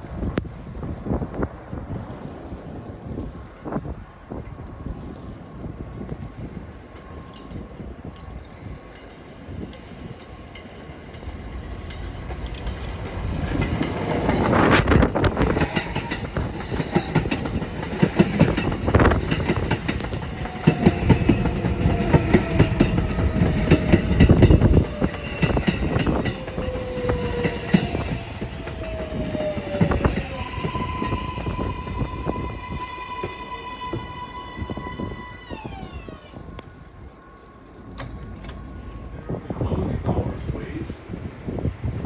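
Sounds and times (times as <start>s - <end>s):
subway train rumbling: 0.0s - 42.0s
wheels clattering over rail joints: 7.1s - 31.5s
wheel squeals: 12.4s - 36.5s.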